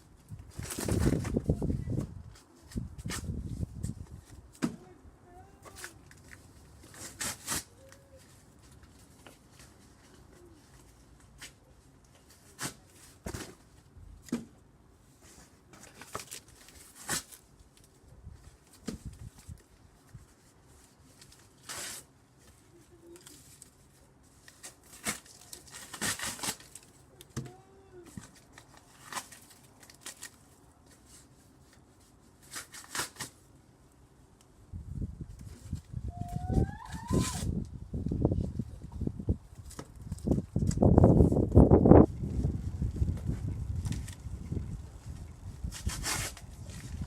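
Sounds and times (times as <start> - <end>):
cardboard tearing: 24.6 - 26.9, 32.4 - 33.4, 45.7 - 46.9.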